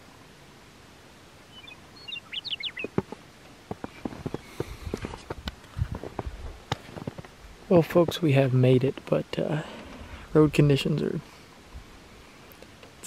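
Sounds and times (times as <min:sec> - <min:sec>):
small bird chirping: 0:01.5 - 0:03.0.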